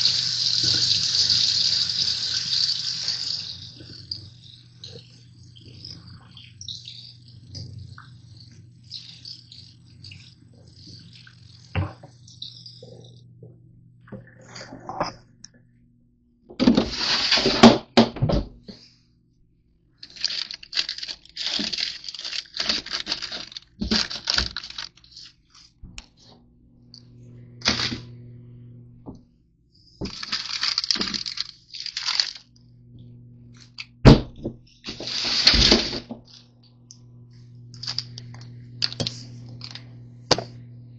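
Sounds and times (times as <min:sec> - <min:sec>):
faint low hum: 0:00.1 - 0:40.9
wrapper crinkling and tearing: 0:20.0 - 0:25.6, 0:30.0 - 0:32.5, 0:34.8 - 0:36.4, 0:37.8 - 0:39.8.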